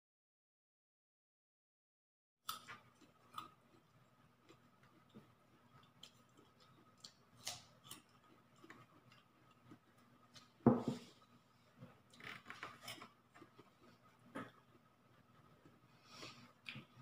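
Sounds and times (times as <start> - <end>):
chewing with small clicks: 2.5 - 10.6, 11.9 - 17.0.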